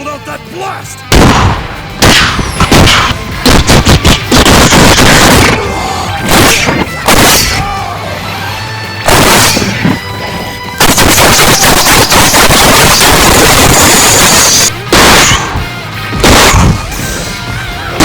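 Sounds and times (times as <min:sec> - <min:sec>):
background music: 0:00.0 - 0:18.0
mouth blast noises: 0:09.0 - 0:18.0.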